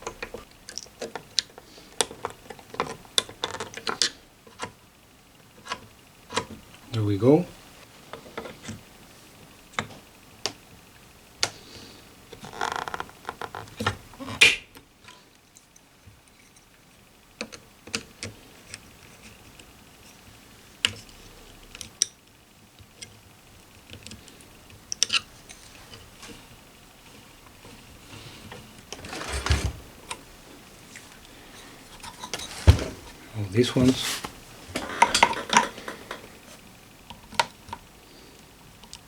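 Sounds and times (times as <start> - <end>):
small parts clicking and tapping: 0.0 - 4.8, 20.8 - 26.4
scraping rustle: 25.4 - 36.6.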